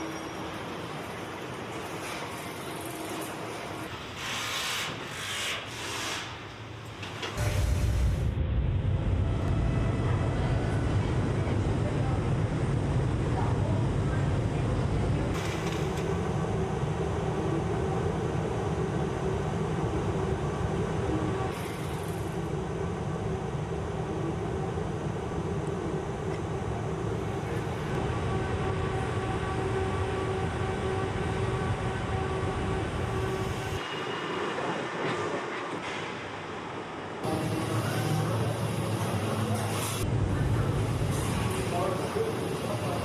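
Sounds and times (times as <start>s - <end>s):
machinery steady hums: 0.0s - 43.0s
machinery low rumble: 7.4s - 33.8s, 37.3s - 43.0s.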